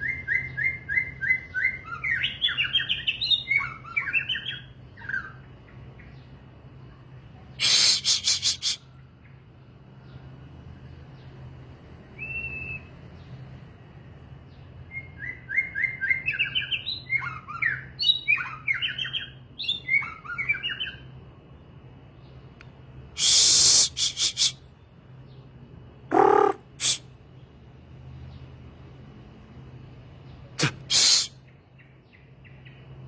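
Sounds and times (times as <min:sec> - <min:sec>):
songbird whistling: 0:00.0 - 0:05.4, 0:07.6 - 0:08.8, 0:12.2 - 0:13.0, 0:14.9 - 0:21.1.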